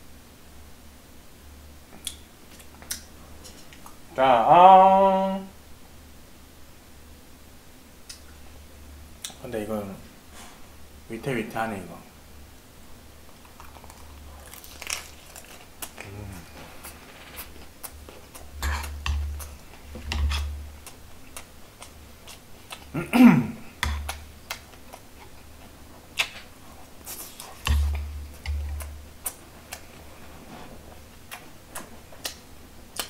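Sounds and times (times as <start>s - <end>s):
person chewing: 13.3s - 23.0s, 23.7s - 30.2s, 31.0s - 33.0s.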